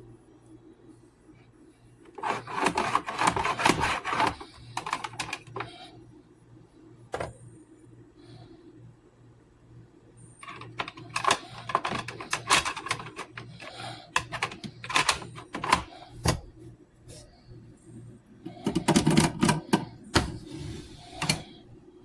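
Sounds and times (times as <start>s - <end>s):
steady low hum: 0.0s - 22.0s
clicks and knocks of handling: 2.1s - 5.8s, 10.4s - 16.5s, 18.5s - 20.4s.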